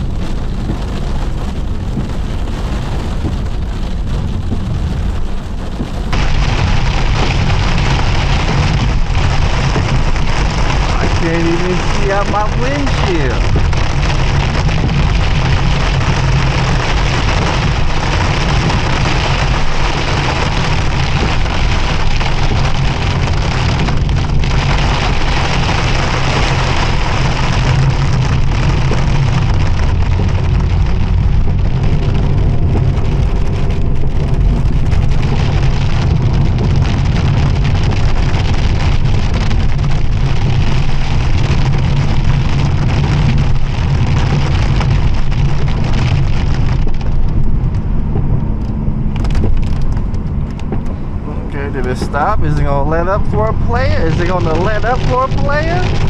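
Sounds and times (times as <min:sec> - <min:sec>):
car engine rumble: 0:00.0 - 0:56.0
heavy rain on a car: 0:00.0 - 0:56.0
tyres on wet road: 0:00.0 - 0:56.0.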